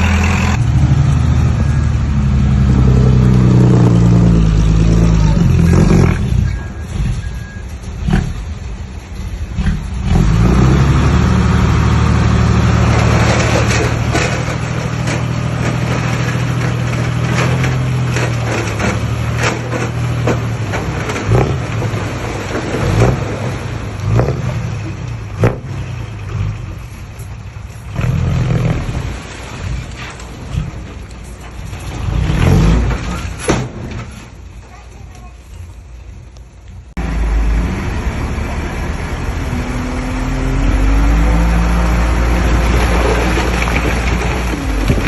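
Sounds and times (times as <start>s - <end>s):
heavy diesel engine revving: 0.0s - 7.3s, 9.5s - 26.5s, 37.0s - 45.0s.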